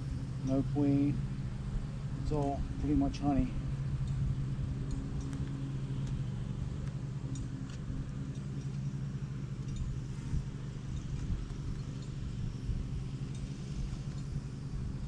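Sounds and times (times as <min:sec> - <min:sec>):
light clicks of hive frames: 0:04.8 - 0:12.2, 0:13.2 - 0:14.4.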